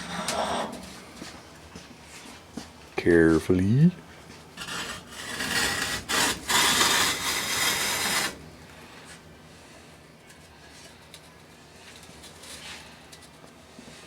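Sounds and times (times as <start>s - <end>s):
ceramic foam blocks scraping: 4.6s - 8.4s.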